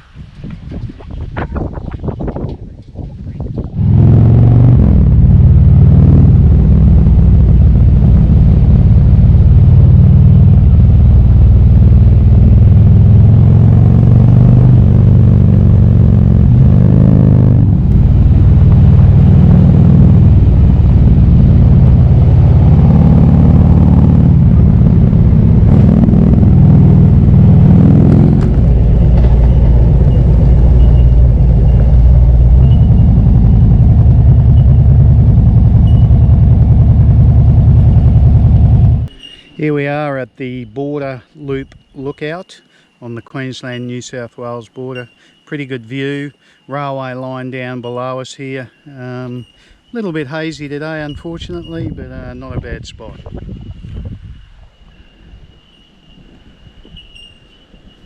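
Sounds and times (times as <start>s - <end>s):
motorcycle engine running: 3.5s - 39.1s.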